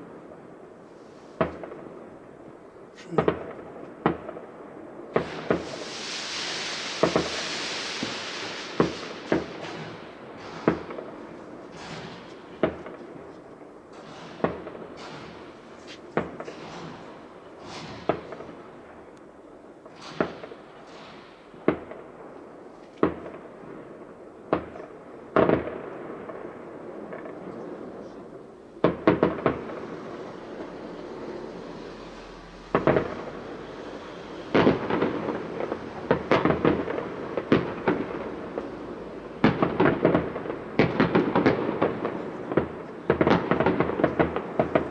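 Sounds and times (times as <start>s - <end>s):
crackling hiss of fireworks: 0.0s - 44.9s
firework shells bursting: 5.1s - 12.9s, 28.7s - 44.9s.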